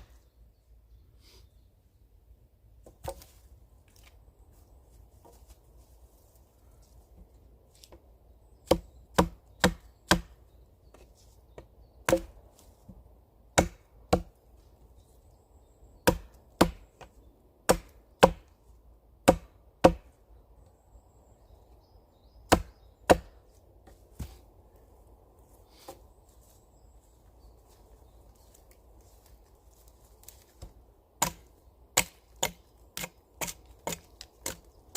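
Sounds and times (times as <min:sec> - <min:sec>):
axe chopping wood: 0:08.6 - 0:10.4, 0:11.6 - 0:12.4, 0:13.6 - 0:14.4, 0:16.0 - 0:17.1, 0:17.7 - 0:18.5, 0:19.2 - 0:20.1, 0:22.5 - 0:23.4, 0:30.6 - 0:34.7.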